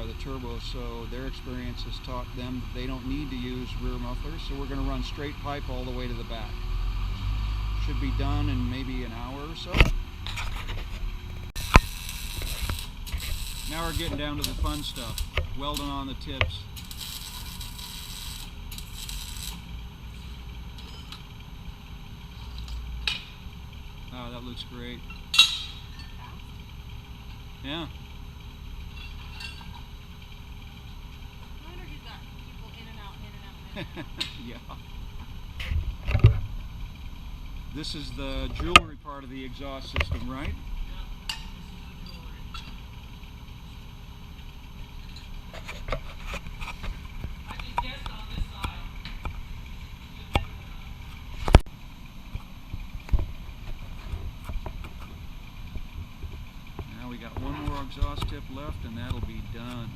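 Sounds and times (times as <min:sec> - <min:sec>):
low steady rumble: 0:00.0 - 0:59.9
welder crackling and hissing: 0:11.3 - 0:21.0.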